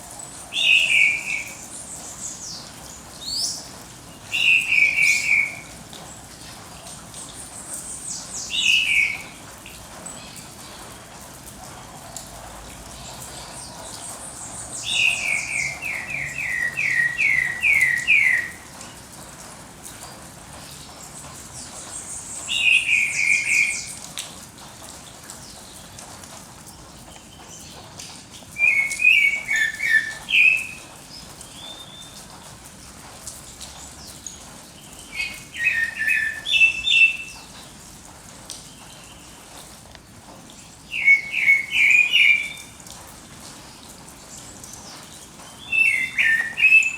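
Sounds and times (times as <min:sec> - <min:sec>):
songbird singing: 0:00.3 - 0:05.8, 0:07.2 - 0:09.4, 0:13.0 - 0:19.0, 0:20.8 - 0:24.1, 0:28.5 - 0:32.4, 0:33.8 - 0:37.7, 0:40.5 - 0:42.9, 0:43.7 - 0:46.9.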